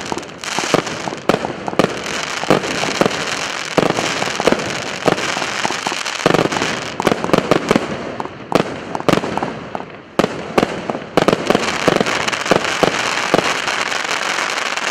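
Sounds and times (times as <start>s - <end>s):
crackling hiss: 0.0s - 7.5s
firework bangs: 0.0s - 14.9s.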